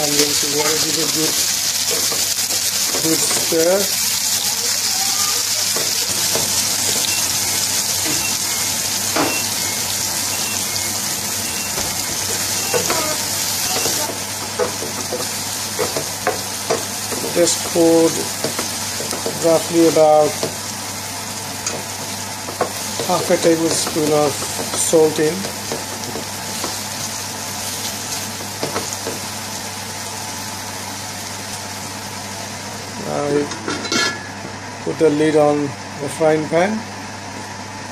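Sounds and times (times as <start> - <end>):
onions sizzling in a frying pan: 0.0 - 37.9
wooden spoon knocking against pan: 21.6 - 26.8, 28.4 - 29.3.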